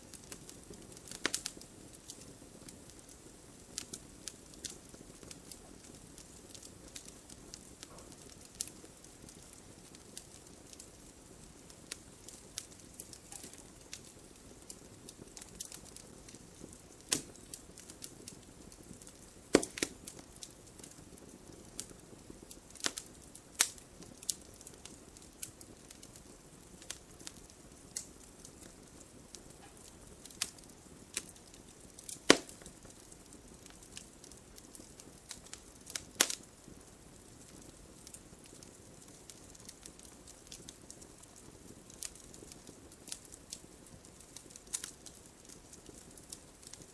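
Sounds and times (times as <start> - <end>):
wood fire crackling: 0.0 - 46.9
sharp pops and snaps: 0.2 - 2.2, 11.9 - 18.1, 18.9 - 22.0, 22.7 - 26.2, 29.5 - 34.0, 34.6 - 36.4.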